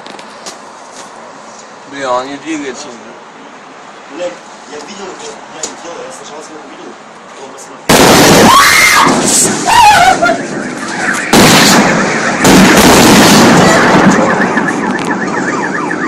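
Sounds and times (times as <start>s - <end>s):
voice shouting: 8.5s - 10.4s
loud rumbling noise: 11.3s - 14.7s.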